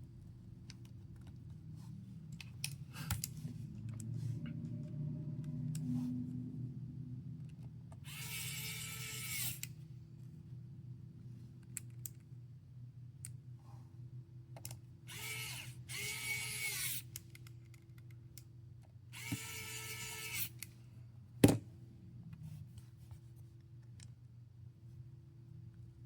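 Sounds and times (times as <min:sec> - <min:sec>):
electric screwdriver motor: 0:08.0 - 0:09.7, 0:15.1 - 0:17.1, 0:19.2 - 0:20.6.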